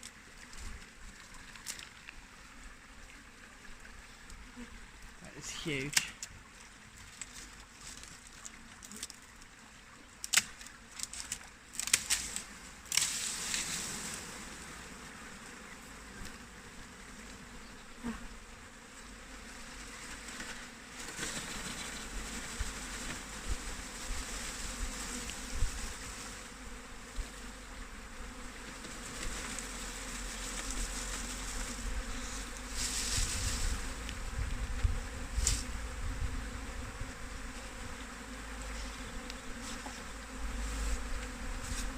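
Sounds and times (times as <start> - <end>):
bee swarm buzzing: 12.2 - 41.9.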